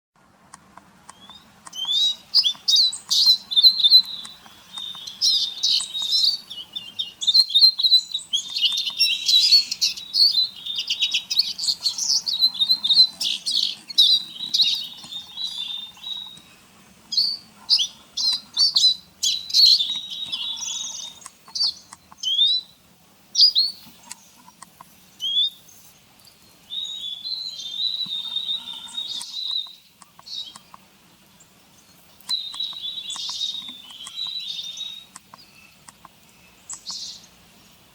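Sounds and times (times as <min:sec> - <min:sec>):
small songbirds chirping: 0:00.5 - 0:37.9.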